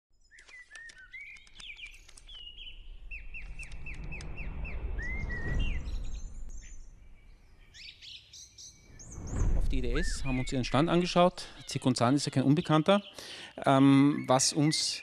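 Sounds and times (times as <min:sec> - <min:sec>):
birds chirping and singing: 0:00.2 - 0:15.0
down-slurred whistled bird notes: 0:00.2 - 0:15.0
low rushing noise: 0:02.6 - 0:08.0, 0:08.7 - 0:11.6.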